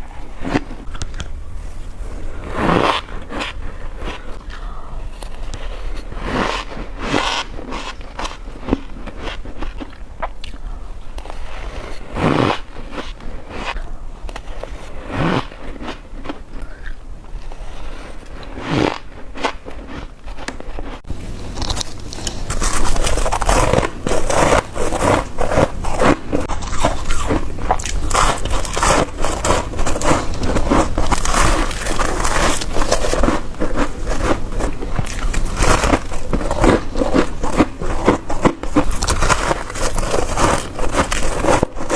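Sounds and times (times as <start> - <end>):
crunchy chewing of frost: 21.0 - 41.9.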